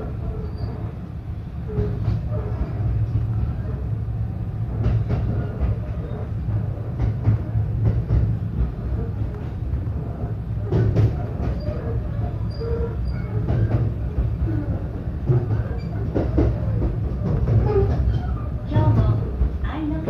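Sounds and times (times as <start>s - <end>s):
train low rumble: 0.0s - 20.0s
wheels clicking over rail joints: 4.8s - 20.0s.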